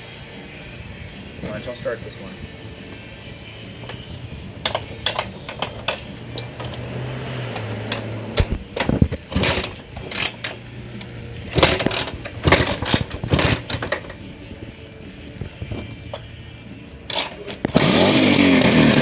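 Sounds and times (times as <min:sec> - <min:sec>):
loud sharp engine bursts: 0:17.1 - 0:19.0.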